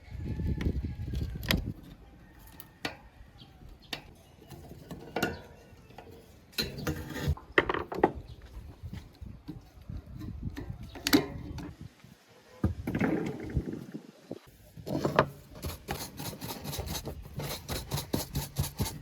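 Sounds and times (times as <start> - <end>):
rubbing and handling noise: 8.2 - 19.0.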